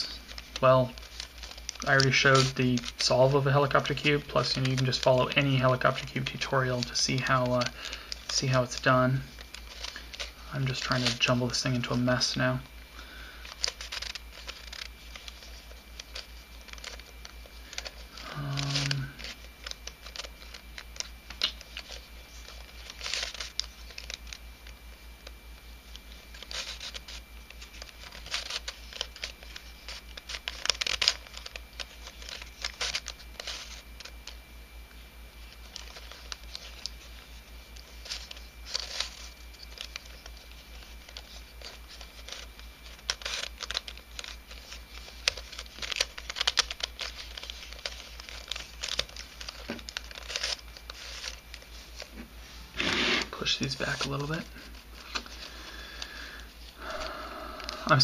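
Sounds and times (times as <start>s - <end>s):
puzzle pieces scraping and clicking: 13.4s - 24.4s.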